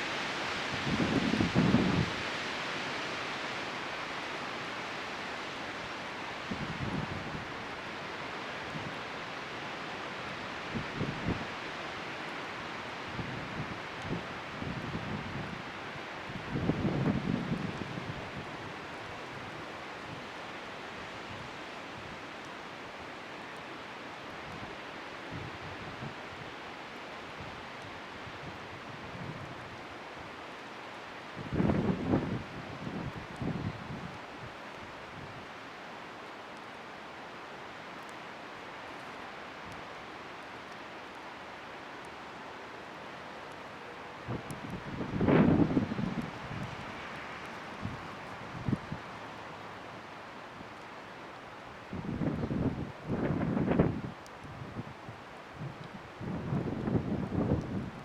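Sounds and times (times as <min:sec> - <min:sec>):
bonfire in strong wind: 0:00.0 - 0:58.0
faint fire crackling: 0:00.0 - 0:58.0
wind gust: 0:44.3 - 0:49.0
wind buffeting microphone: 0:44.3 - 0:49.1, 0:51.9 - 0:55.0, 0:55.6 - 0:58.0.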